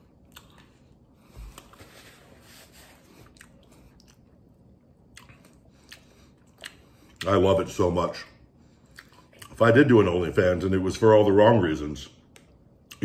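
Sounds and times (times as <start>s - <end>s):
person chewing wetly: 0.0s - 1.8s, 3.1s - 7.4s, 8.8s - 9.6s.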